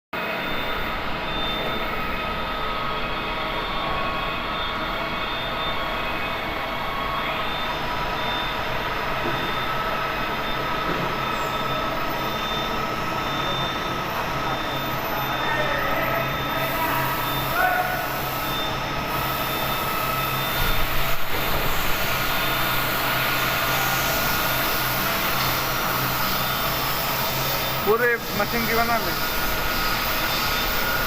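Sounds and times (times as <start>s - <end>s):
machine mechanical drone: 0.2s - 31.0s
machine whining tones: 0.2s - 31.0s.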